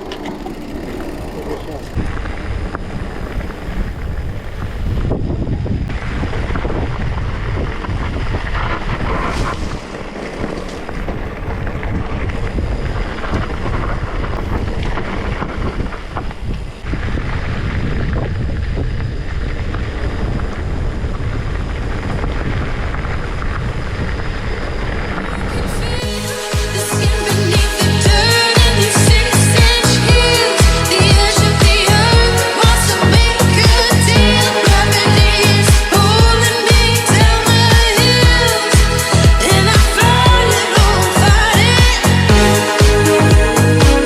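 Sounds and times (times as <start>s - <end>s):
bicycle clicks and knocks: 0.0s - 3.6s
wind buffeting microphone: 0.0s - 44.0s.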